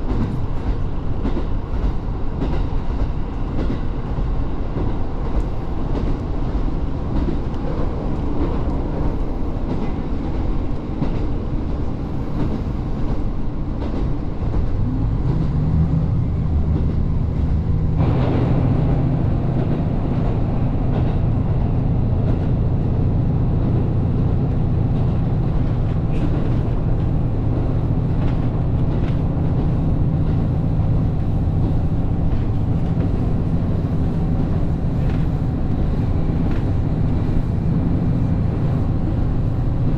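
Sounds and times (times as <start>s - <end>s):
diesel train engine rumble: 0.0s - 39.9s.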